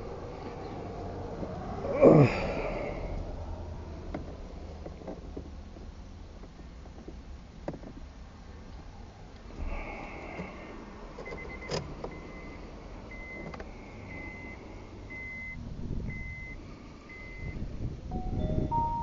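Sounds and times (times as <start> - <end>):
car warning chime beeping: 11.2 - 19.0
low electronic tones: 18.1 - 19.0.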